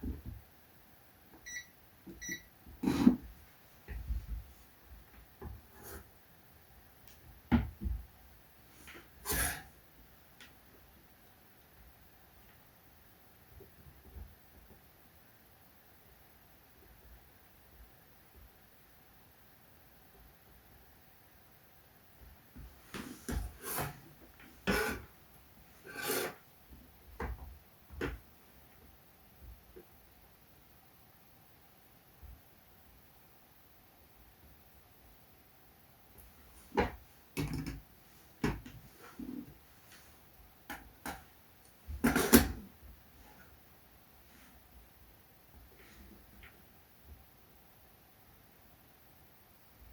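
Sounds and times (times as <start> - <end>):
hands scraping laptop parts: 22.9 - 25.1, 25.8 - 26.4.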